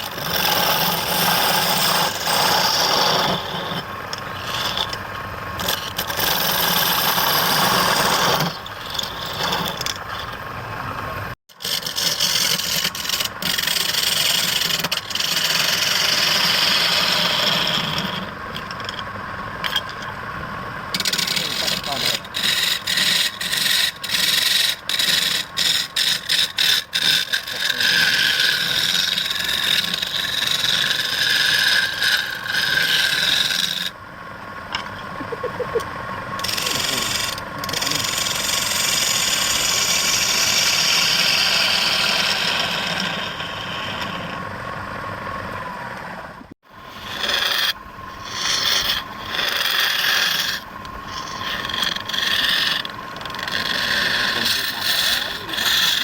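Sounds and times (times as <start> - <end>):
lathe tool scraping wood: 0.0 - 20.0, 20.9 - 34.0, 35.7 - 44.5, 46.8 - 56.0.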